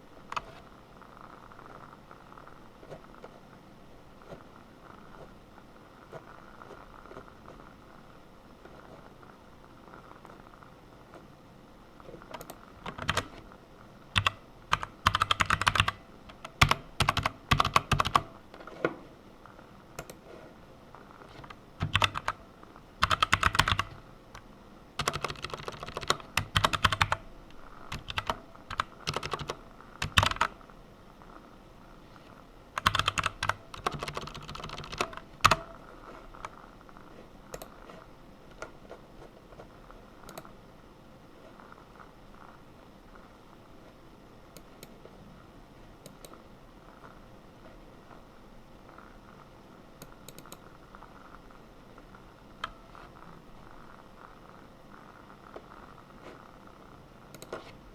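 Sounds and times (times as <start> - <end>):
typing on a keyboard: 12.3 - 13.4, 14.2 - 18.4, 21.3 - 22.4, 23.0 - 24.4, 25.0 - 27.2, 27.8 - 30.6, 32.8 - 35.7.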